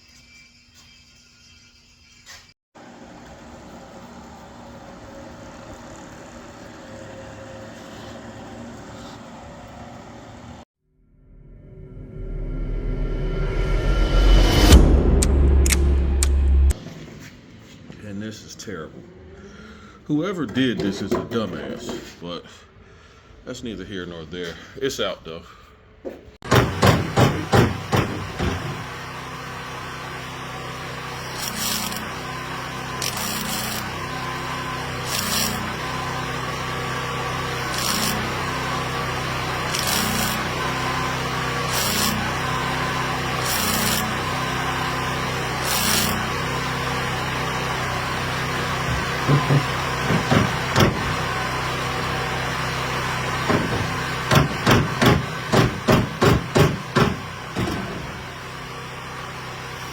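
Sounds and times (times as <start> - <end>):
machine hum: 2.8 - 20.6, 26.5 - 59.9
sharp knocks: 26.4 - 28.8, 49.2 - 51.2, 53.5 - 57.9.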